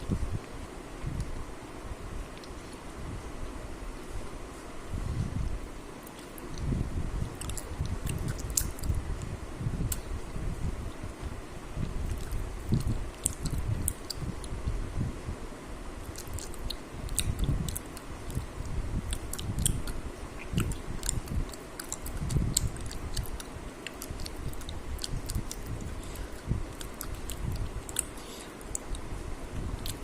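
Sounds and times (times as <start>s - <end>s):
person chewing food: 7.3s - 9.3s, 11.8s - 14.6s, 16.0s - 30.0s
sharp mouth clicks: 7.3s - 10.2s, 11.8s - 14.6s, 16.0s - 30.0s.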